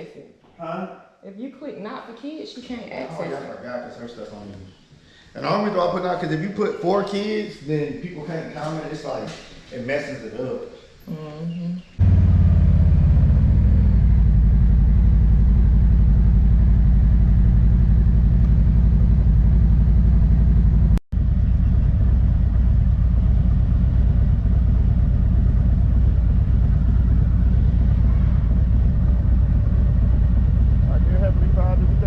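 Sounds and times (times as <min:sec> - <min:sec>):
motorcycle engine rumbling: 0:11.8 - 0:32.0.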